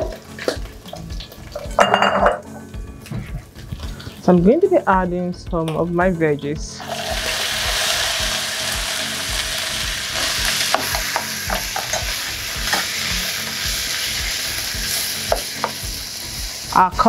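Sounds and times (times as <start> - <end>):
vegetables sizzling in hot oil: 6.8 - 17.0.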